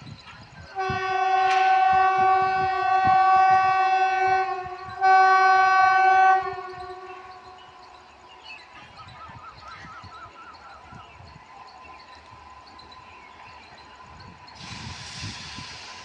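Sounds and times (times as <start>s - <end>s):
locomotive horn blasts: 0.7s - 7.6s.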